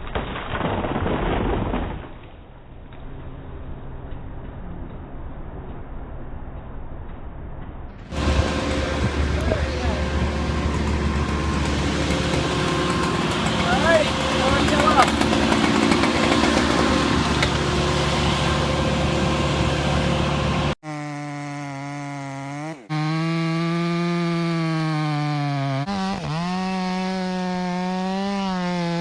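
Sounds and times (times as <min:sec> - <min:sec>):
chainsaw running at high revs: 0:08.1 - 0:29.0.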